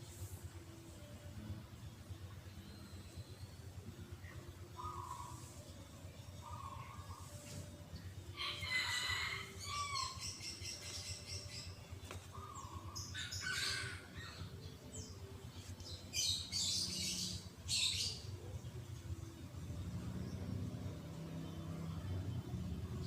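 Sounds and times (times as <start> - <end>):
birds calling: 2.7 - 18.5.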